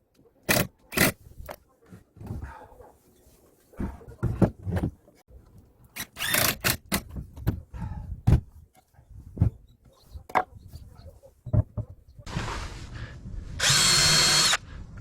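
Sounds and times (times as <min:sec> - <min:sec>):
knocks and thumps of lumber: 0:03.8 - 0:05.1, 0:06.4 - 0:08.6, 0:09.2 - 0:10.6, 0:11.4 - 0:12.4
wood scraping: 0:11.5 - 0:13.2.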